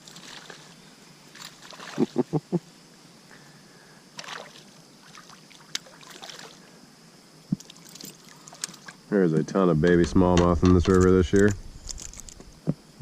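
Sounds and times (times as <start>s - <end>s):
water splash: 4.2s - 6.6s.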